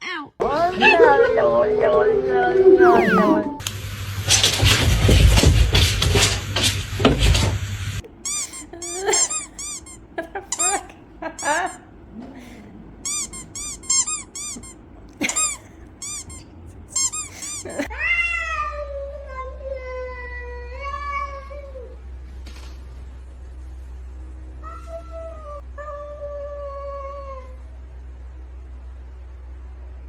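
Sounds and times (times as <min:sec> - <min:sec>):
cat meowing: 0:02.8 - 0:03.6, 0:08.0 - 0:11.8, 0:12.4 - 0:18.6.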